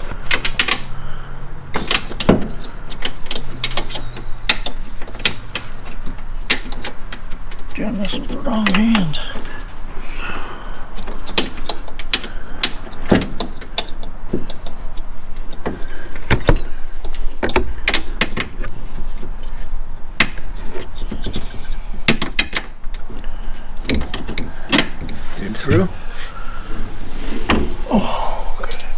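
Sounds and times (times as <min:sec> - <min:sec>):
tools clicking and knocking: 0:00.0 - 0:00.9, 0:01.7 - 0:07.7.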